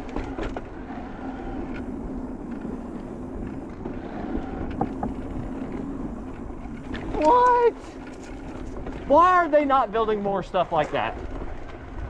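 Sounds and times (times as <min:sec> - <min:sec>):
bike tyres rolling on dirt: 0:00.0 - 0:12.0.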